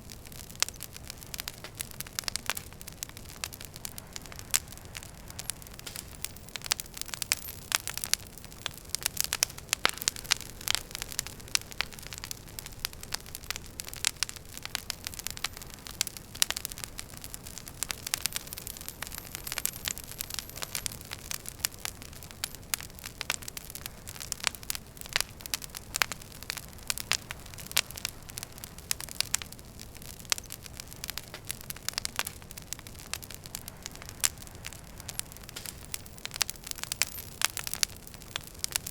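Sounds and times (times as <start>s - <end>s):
rush of flames: 0.0s - 38.9s
wood fire crackling and popping: 0.0s - 38.9s.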